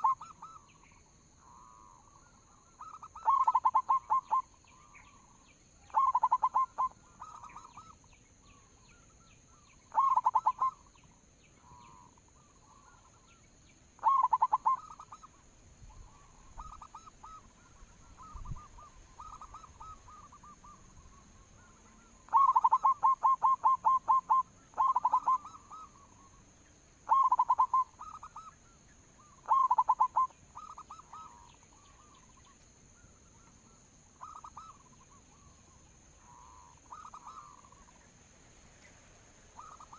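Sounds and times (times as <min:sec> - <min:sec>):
doves cooing: 0:00.0 - 0:00.7, 0:02.8 - 0:08.0, 0:09.9 - 0:10.8, 0:14.0 - 0:15.3, 0:16.0 - 0:26.4, 0:27.1 - 0:28.5, 0:29.2 - 0:32.5.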